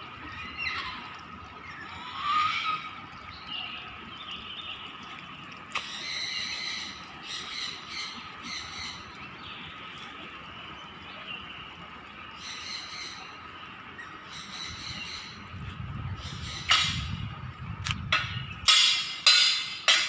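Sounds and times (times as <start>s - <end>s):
birds squawking harshly: 0.3s - 3.1s, 16.1s - 17.2s.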